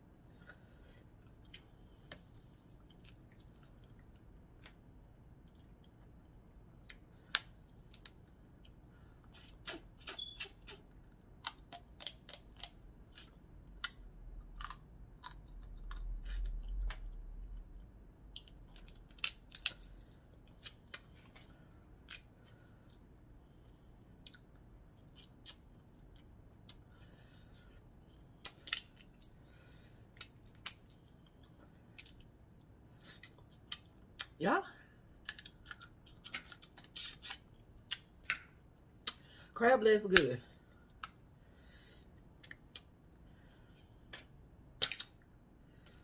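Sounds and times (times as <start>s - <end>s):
crab shells snapping: 6.9s - 8.3s, 11.4s - 12.8s, 18.4s - 20.0s, 44.1s - 45.2s.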